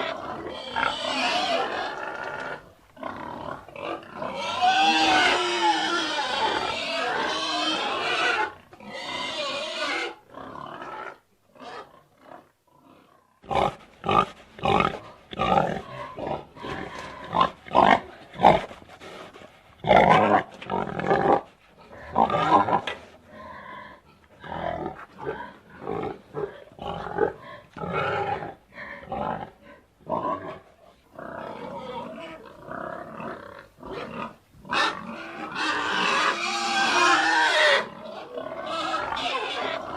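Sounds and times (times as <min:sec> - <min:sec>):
pig grunting and squealing: 0:00.0 - 0:39.9.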